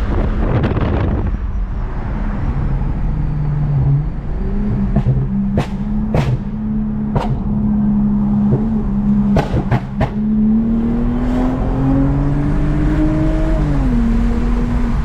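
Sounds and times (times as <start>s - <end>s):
car engine accelerating: 0.0s - 15.0s
exhaust cracks: 4.8s - 7.7s, 8.4s - 10.2s.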